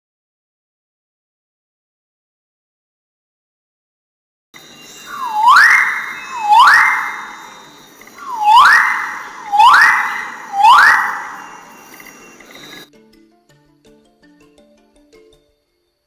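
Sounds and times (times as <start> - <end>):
bird giving harsh calls: 5.1 - 11.9.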